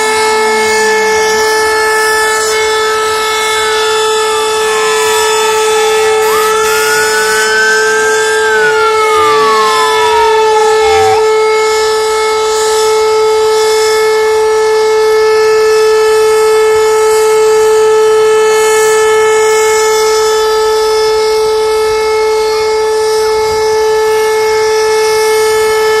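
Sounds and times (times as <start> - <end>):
siren tone sliding down: 0.0 - 14.1
siren steady tone: 0.0 - 26.0.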